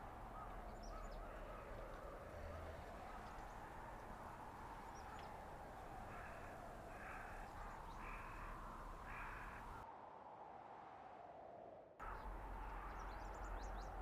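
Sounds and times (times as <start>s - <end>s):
bird calling: 0.0s - 9.8s
wind blowing through forest: 0.0s - 14.0s.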